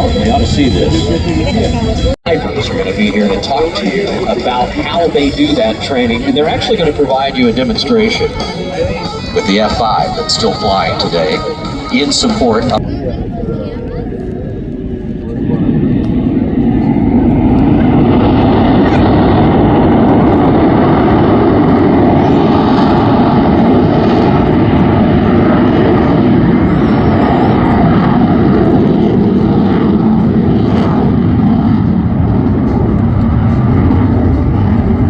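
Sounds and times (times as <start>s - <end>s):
aircraft engine noise: 0.0s - 35.0s.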